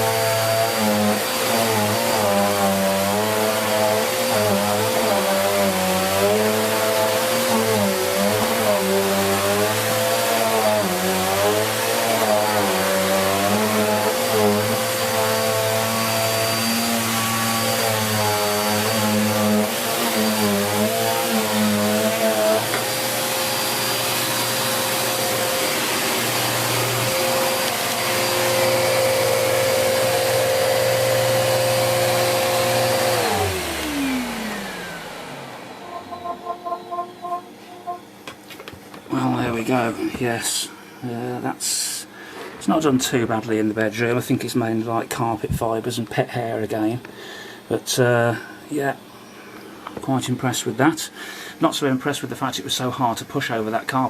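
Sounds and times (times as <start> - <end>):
vacuum cleaner running on carpet: 0.0 - 37.6.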